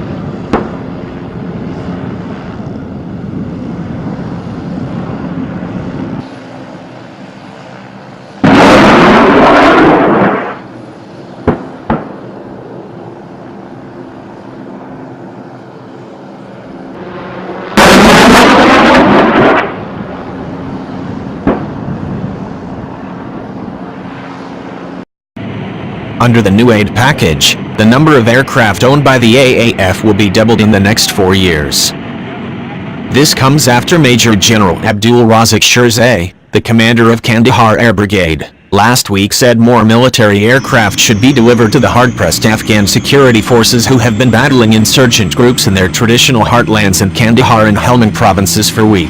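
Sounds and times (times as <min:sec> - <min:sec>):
steady engine hum: 0:00.0 - 0:49.0
bursts of weapons fire: 0:08.4 - 0:10.7, 0:11.4 - 0:12.2, 0:17.7 - 0:19.9.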